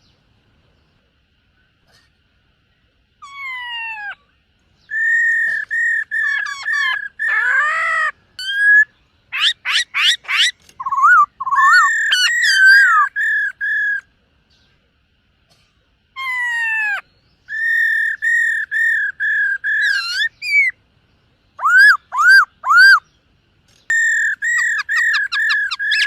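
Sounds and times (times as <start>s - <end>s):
bird singing whistled song: 4.8s - 14.7s, 17.0s - 20.8s, 21.5s - 23.2s, 23.8s - 26.0s.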